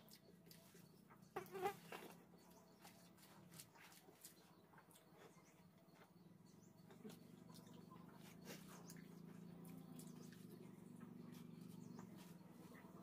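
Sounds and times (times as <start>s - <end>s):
wet chewing and lip-smacking: 0.0s - 1.0s, 2.5s - 6.0s, 6.9s - 11.8s
low steady hum: 0.0s - 13.0s.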